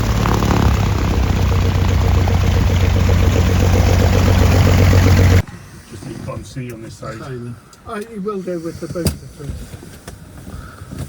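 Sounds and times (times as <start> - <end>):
piston aircraft engines running: 0.0 - 5.4.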